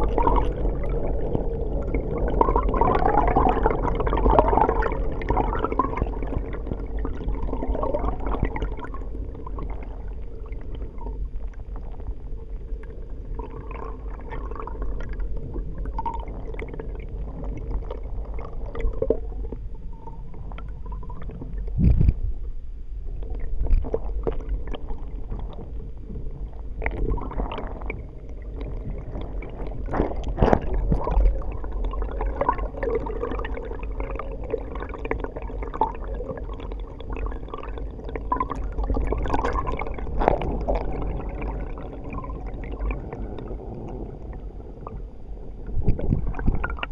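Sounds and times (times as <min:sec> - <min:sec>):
muffled water gurgling underwater: 0:00.0 - 0:46.9
low thumps: 0:21.1 - 0:22.6.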